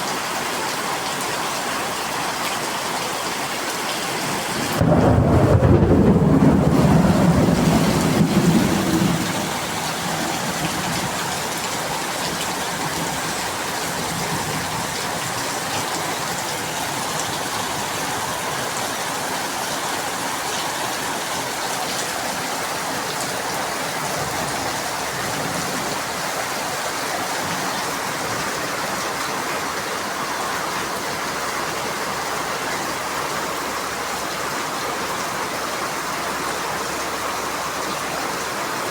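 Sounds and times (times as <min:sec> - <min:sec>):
heavy rain falling: 0:00.0 - 0:38.9
low rumble of thunder: 0:04.7 - 0:15.5.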